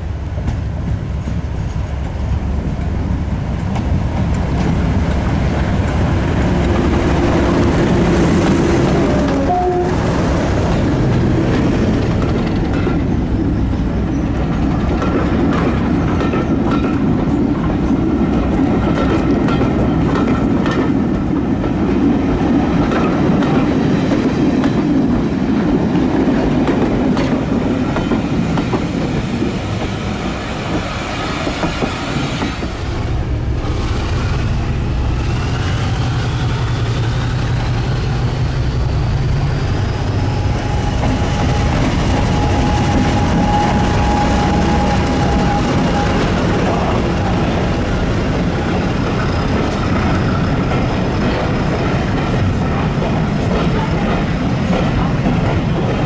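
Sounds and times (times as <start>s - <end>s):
train wheels clickety-clacking: 0.0s - 56.0s
rising whine: 30.2s - 47.2s
low engine drone: 32.6s - 42.0s.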